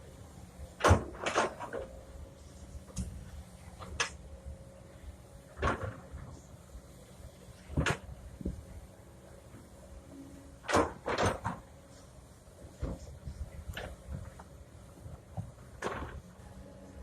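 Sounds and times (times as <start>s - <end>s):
knocks and clunks: 15.3s - 16.2s.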